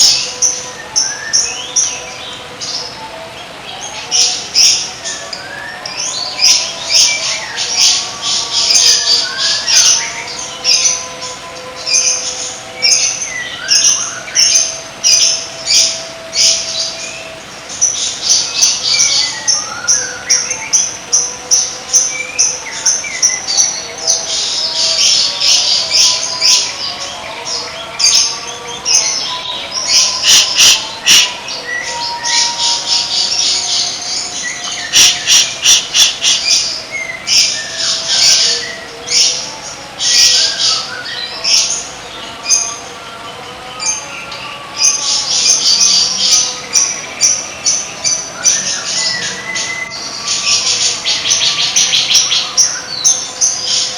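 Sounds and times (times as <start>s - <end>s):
songbird chattering and trilling: 27.6s - 42.8s, 43.9s - 53.9s.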